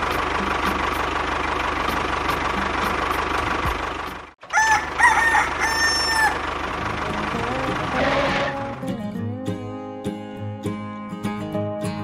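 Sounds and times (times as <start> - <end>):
small engine running: 0.0 - 9.0
rooster crowing: 4.4 - 6.5.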